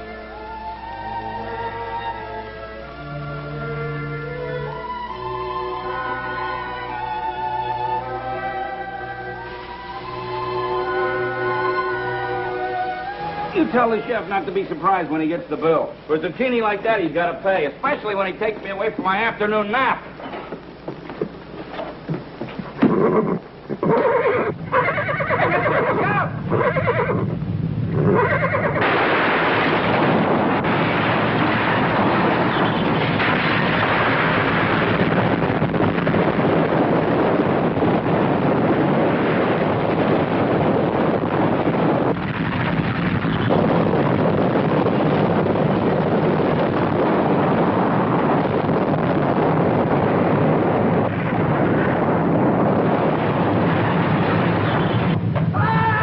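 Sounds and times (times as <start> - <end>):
loud steady rushing noise: 0.0 - 56.0
horse neighing: 22.8 - 27.3, 28.0 - 28.8
earthquake roaring rumble: 27.2 - 56.0.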